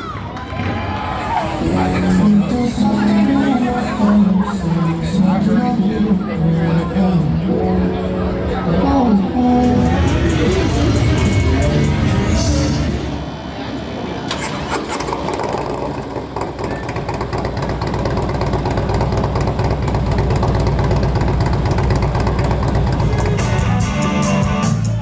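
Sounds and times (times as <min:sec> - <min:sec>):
motorcycle engine running: 0:09.7 - 0:24.7.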